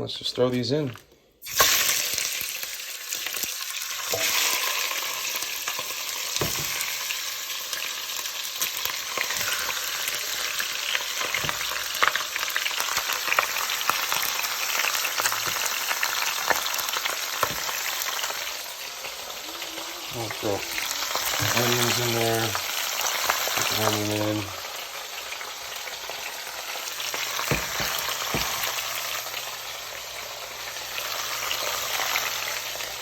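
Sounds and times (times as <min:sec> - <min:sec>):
meat sizzling in hot oil: 0:01.4 - 0:33.0.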